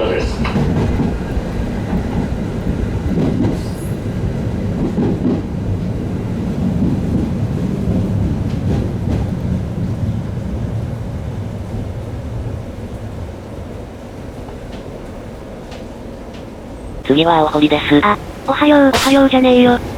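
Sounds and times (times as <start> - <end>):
train wheels rumbling on rails: 0.0 - 13.8.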